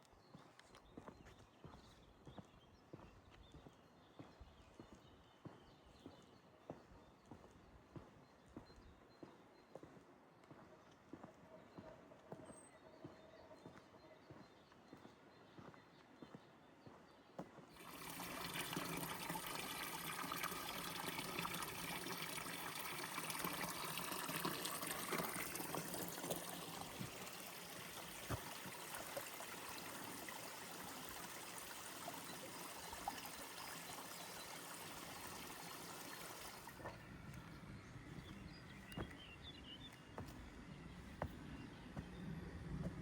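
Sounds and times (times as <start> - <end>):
water trickling and splashing: 17.7 - 41.3.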